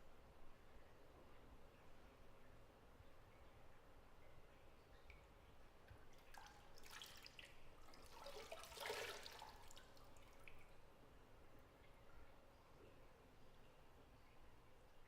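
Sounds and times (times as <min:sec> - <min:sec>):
bathwater drips and splashes: 0:04.9 - 0:10.8.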